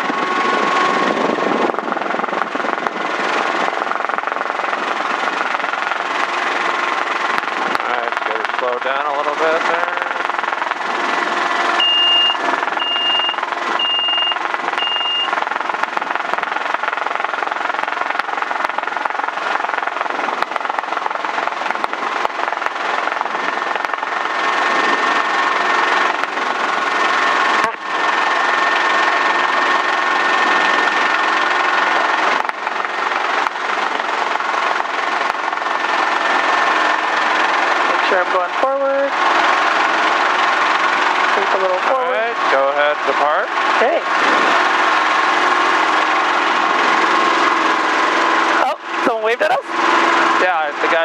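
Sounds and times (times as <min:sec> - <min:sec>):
helicopter engine and rotors: 0:00.0 - 0:51.0
short high-pitched beeps: 0:11.8 - 0:15.4.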